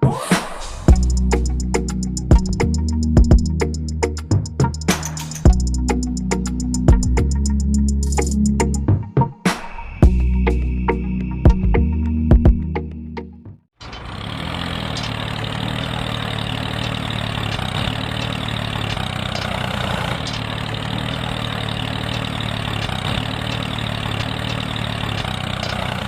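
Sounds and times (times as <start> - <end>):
small engine idling: 0.9 - 8.4, 13.8 - 26.0.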